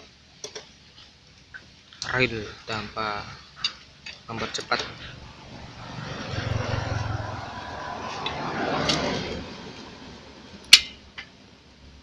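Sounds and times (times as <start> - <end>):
engine running: 4.4 - 11.6.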